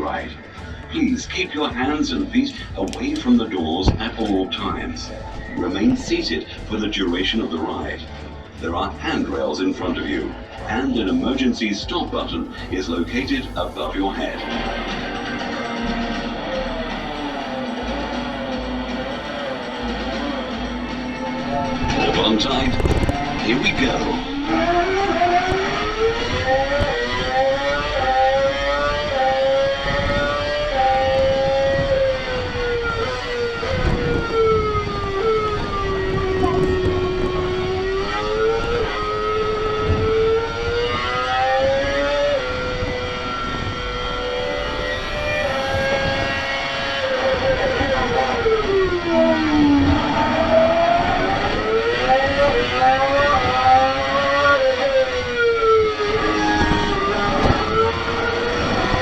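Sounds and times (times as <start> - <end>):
racing car engine over speakers: 0.0 - 59.0.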